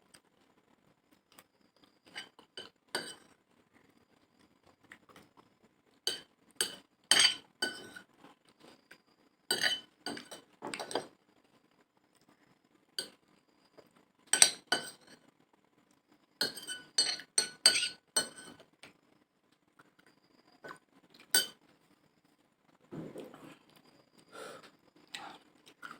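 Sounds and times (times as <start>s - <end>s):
spoon clinking against a dish: 2.1s - 3.3s, 6.1s - 8.0s, 9.5s - 11.1s, 14.3s - 15.2s, 16.4s - 18.6s, 21.3s - 21.6s.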